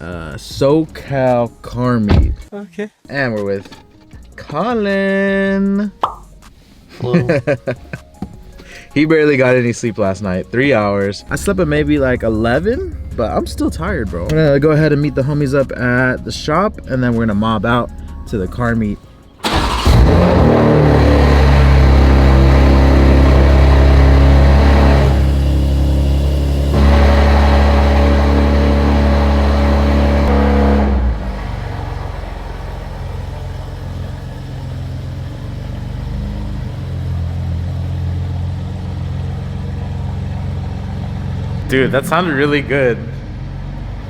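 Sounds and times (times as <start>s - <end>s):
car engine idling loudly: 19.4s - 41.7s.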